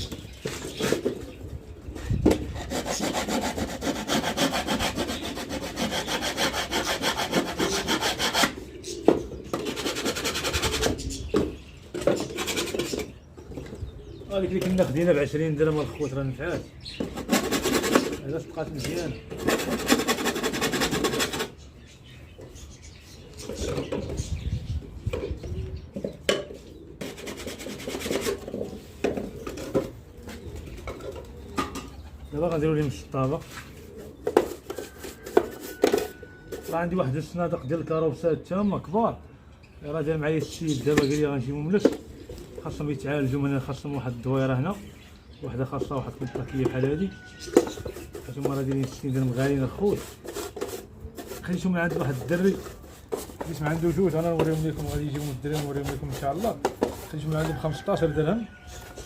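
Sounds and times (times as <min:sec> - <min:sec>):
scraping on wood: 0:02.2 - 0:13.7, 0:16.8 - 0:24.2, 0:25.2 - 0:32.0, 0:33.4 - 0:36.9, 0:45.9 - 0:59.0.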